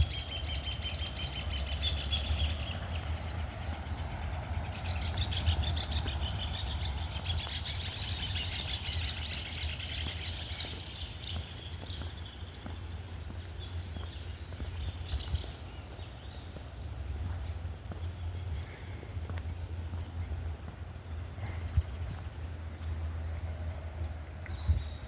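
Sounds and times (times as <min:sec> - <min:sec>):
songbirds chirping: 0:00.0 - 0:25.0
steady low rumble: 0:00.0 - 0:25.0.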